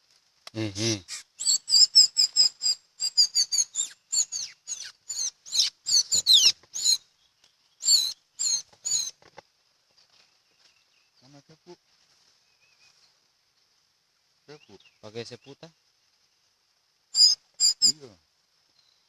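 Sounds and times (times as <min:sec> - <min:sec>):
bird chirping sharply: 0:01.0 - 0:07.0, 0:07.8 - 0:09.1, 0:17.2 - 0:18.1.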